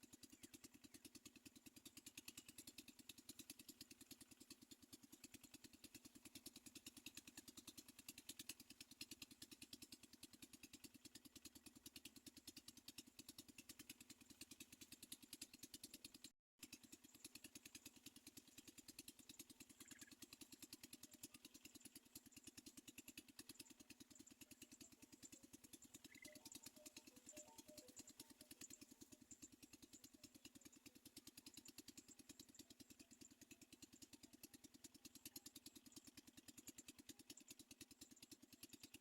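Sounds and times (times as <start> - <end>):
faint pulsing drone: 25.2 - 30.9.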